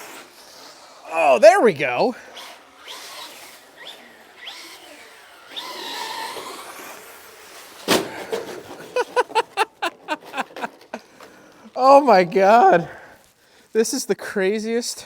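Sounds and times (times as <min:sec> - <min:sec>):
electric motor whining: 0:02.8 - 0:07.4.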